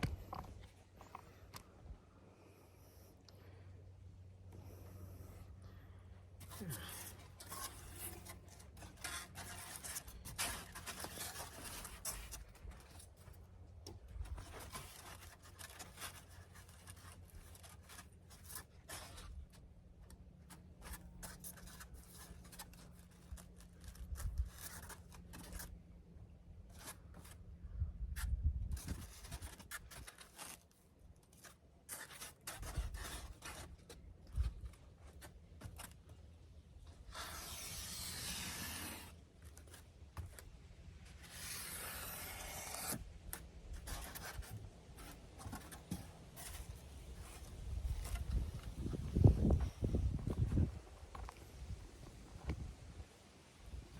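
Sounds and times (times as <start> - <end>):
foam board scraping and rustling: 6.4 - 19.7, 20.4 - 25.8, 28.1 - 36.1, 36.9 - 52.9.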